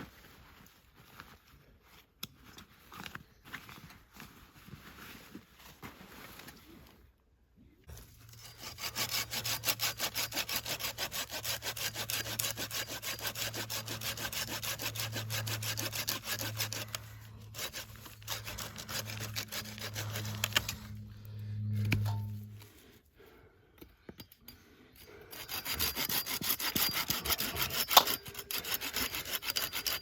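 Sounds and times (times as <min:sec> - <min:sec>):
hand saw cutting wood: 0:08.2 - 0:21.1, 0:25.3 - 0:30.0.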